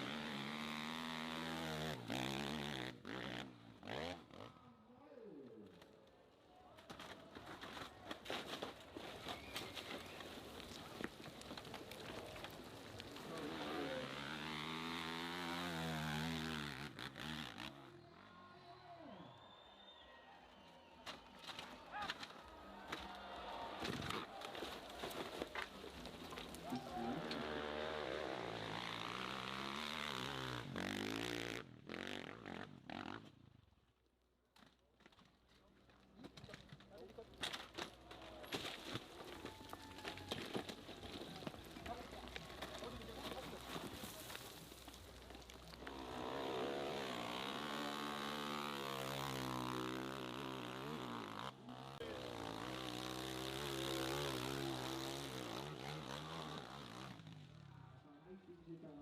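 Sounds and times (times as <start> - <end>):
motorcycle engine revving: 0.0 - 4.6, 13.0 - 18.0, 26.0 - 33.5, 45.2 - 57.8.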